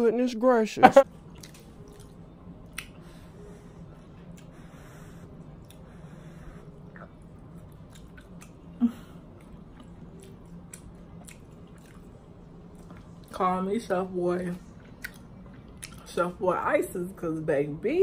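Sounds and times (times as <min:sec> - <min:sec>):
person chewing: 0:01.2 - 0:03.0, 0:06.8 - 0:08.7, 0:09.3 - 0:13.3, 0:14.8 - 0:16.1.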